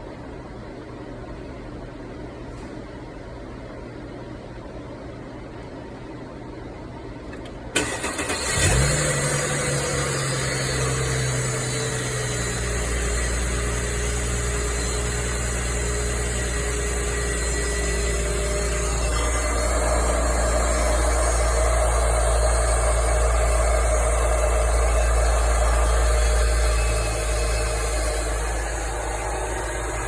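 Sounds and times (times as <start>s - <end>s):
car starter cranking: 7.8s - 10.5s
car engine idling: 7.8s - 30.0s
high-pitched engine whine: 7.8s - 30.0s.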